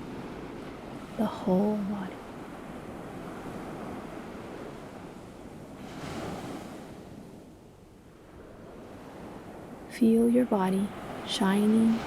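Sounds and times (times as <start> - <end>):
ocean waves breaking on shore: 0.0 - 12.0.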